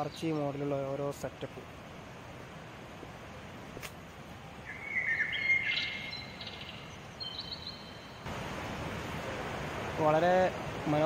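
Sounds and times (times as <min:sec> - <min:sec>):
steady background hiss: 0:00.0 - 0:11.0
bird whistling and trilling: 0:04.7 - 0:08.1.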